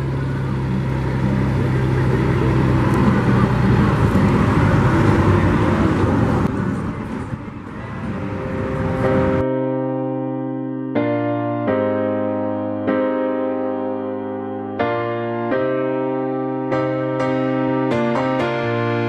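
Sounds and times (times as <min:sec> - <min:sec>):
diesel truck engine humming: 0:00.0 - 0:09.4
piano music: 0:00.0 - 0:19.0
road noise: 0:00.0 - 0:19.0.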